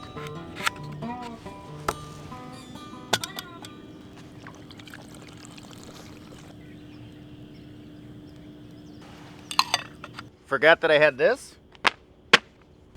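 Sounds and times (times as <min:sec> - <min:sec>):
faint low hum: 0:00.0 - 0:10.5
outdoor water sound: 0:00.2 - 0:10.4.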